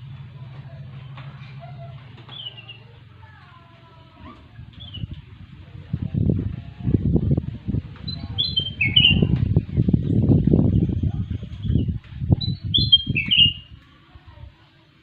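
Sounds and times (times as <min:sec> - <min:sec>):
bulbul whistling song: 0:02.3 - 0:02.9, 0:04.8 - 0:05.2, 0:08.0 - 0:13.8
low thumps and rumbling: 0:03.5 - 0:13.8.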